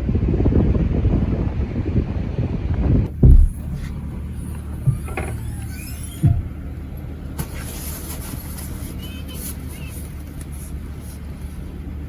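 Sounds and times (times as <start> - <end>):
car engine running: 2.9 - 12.0
dull thumps: 3.1 - 6.9.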